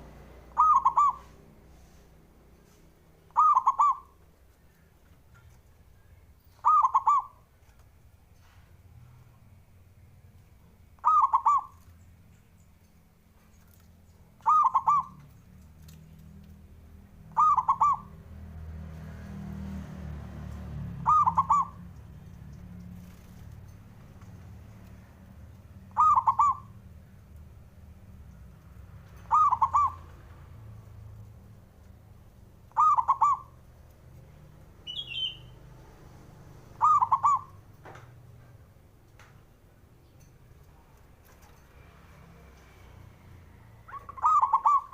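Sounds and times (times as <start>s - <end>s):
dove cooing: 0.6s - 1.4s, 3.3s - 4.2s, 6.6s - 7.4s, 11.0s - 11.8s, 14.4s - 15.3s, 17.3s - 18.2s, 21.0s - 21.8s, 25.9s - 26.8s, 29.2s - 30.1s, 32.7s - 33.6s, 36.7s - 37.6s, 43.8s - 44.9s
high bird chirp: 0.6s - 1.4s, 3.3s - 7.4s, 11.0s - 15.4s, 17.3s - 18.2s, 21.0s - 22.1s, 25.8s - 26.8s, 29.1s - 30.2s, 32.6s - 33.6s, 34.8s - 35.7s, 36.8s - 37.6s, 43.8s - 44.9s.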